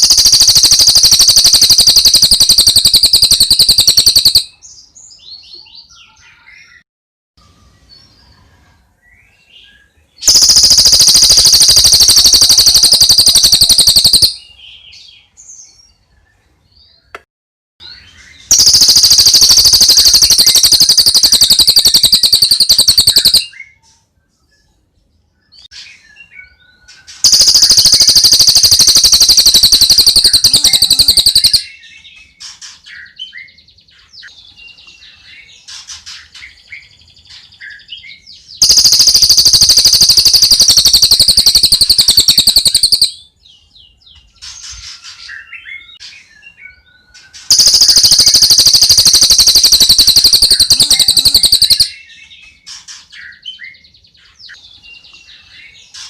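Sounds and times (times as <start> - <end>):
songbird rapid high trilling: 0.0 - 4.5, 10.2 - 14.4, 18.5 - 23.5, 27.2 - 31.7, 38.6 - 43.1, 47.5 - 52.0.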